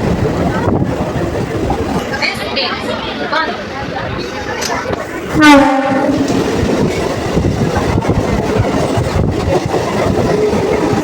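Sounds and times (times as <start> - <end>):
train wheels clattering on rails: 0.0 - 11.0
train horn blast: 5.3 - 6.4.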